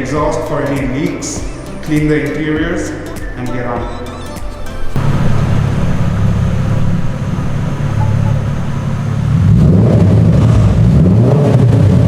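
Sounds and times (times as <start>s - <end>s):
car exhaust drone: 4.0s - 12.0s.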